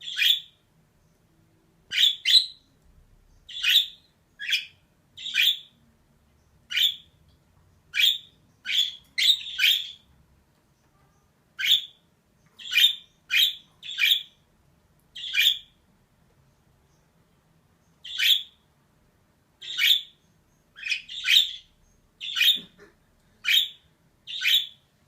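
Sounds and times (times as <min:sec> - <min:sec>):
budgerigar chirping: 0:00.0 - 0:00.6, 0:01.9 - 0:02.7, 0:03.5 - 0:05.8, 0:06.6 - 0:07.2, 0:07.9 - 0:10.1, 0:11.6 - 0:12.0, 0:12.6 - 0:14.4, 0:15.2 - 0:15.8, 0:18.0 - 0:18.6, 0:19.6 - 0:24.9.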